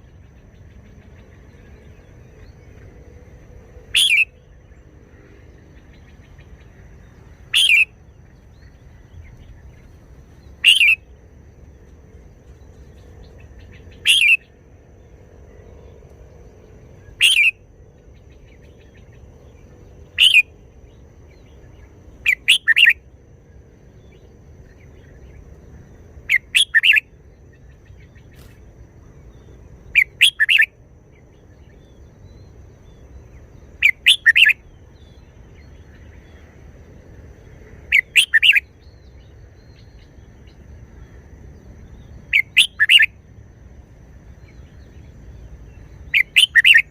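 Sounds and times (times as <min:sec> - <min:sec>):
bird singing short phrases: 0:03.9 - 0:04.5, 0:07.4 - 0:08.0, 0:10.5 - 0:11.0, 0:13.3 - 0:14.5, 0:17.0 - 0:17.6, 0:20.1 - 0:20.5, 0:21.4 - 0:23.0, 0:26.3 - 0:27.0, 0:30.0 - 0:30.7, 0:33.7 - 0:35.8, 0:37.9 - 0:40.1, 0:42.0 - 0:43.1, 0:45.7 - 0:46.9.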